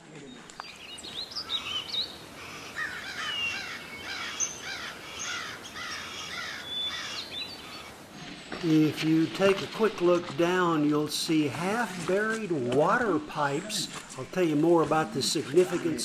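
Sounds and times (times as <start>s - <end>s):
birds chirping: 0.0s - 11.5s.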